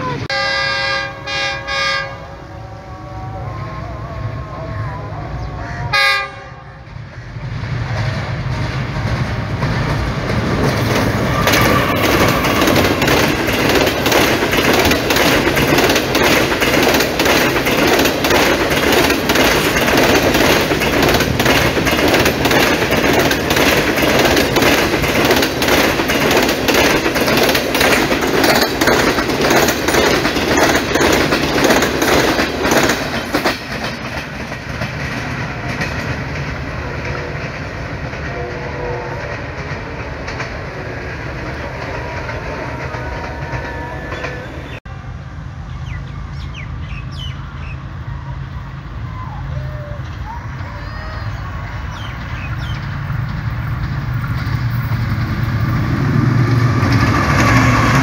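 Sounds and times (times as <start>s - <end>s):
train horn blast: 0.0s - 6.9s, 11.2s - 13.0s, 36.6s - 45.4s
train wheels rushing: 0.0s - 58.0s
clatter over rail joints: 7.8s - 44.8s, 52.0s - 58.0s.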